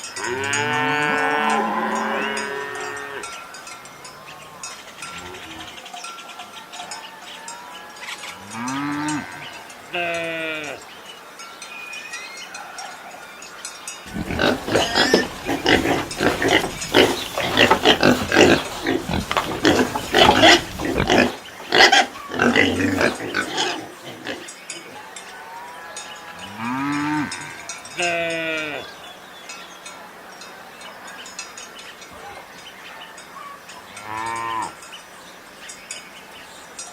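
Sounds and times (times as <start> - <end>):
animals making rapid noisy cries: 14.1 - 27.4.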